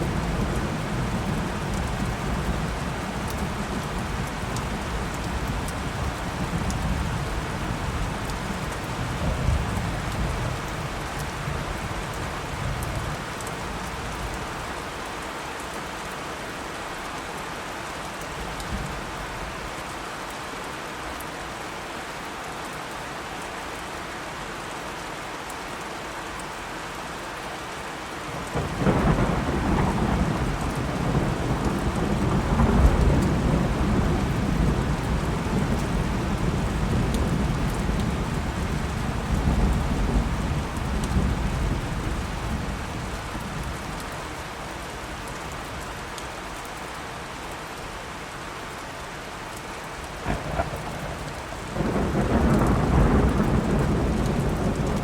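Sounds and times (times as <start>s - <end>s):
steady rain falling: 0.0s - 55.0s
rolling thunder: 28.5s - 43.1s, 50.2s - 55.0s.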